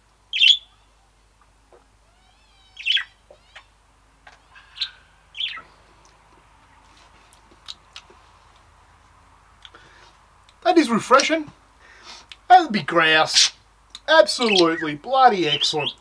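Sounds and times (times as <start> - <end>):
bird chirping and squawking: 0.3 - 0.8, 2.3 - 5.8, 14.4 - 14.9.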